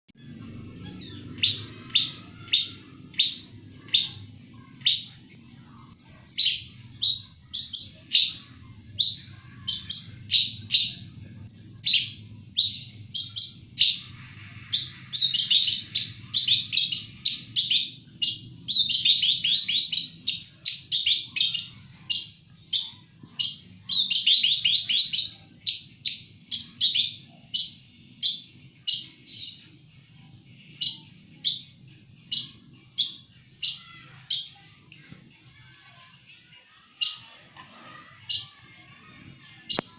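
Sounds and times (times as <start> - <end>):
bird chattering: 0.2 - 29.7, 30.7 - 34.8
bird singing sharp high calls: 0.2 - 29.7.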